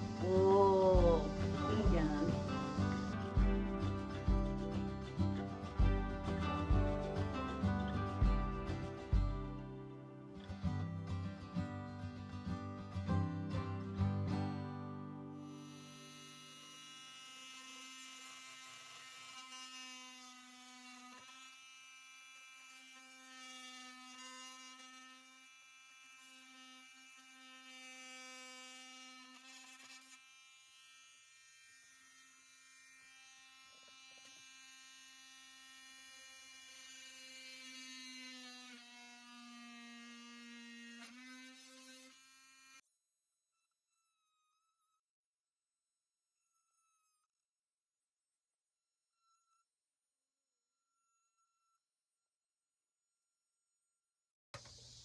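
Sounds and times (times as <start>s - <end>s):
small electric motor buzzing: 0.0s - 10.6s, 14.9s - 42.9s, 43.8s - 45.0s, 46.4s - 47.3s.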